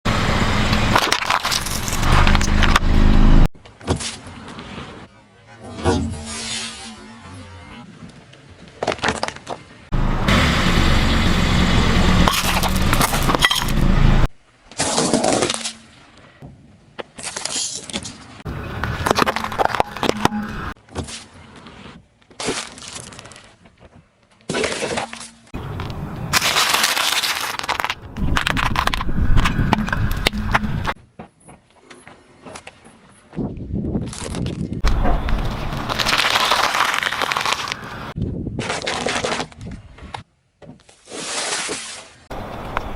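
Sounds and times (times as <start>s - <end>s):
engine and tyres rumbling: 0.1s - 5.1s, 7.0s - 15.5s, 18.3s - 20.8s, 25.5s - 38.2s, 42.3s - 42.9s
objects cracking and crunching: 0.8s - 2.9s, 12.2s - 13.8s, 18.8s - 31.0s, 33.9s - 40.2s.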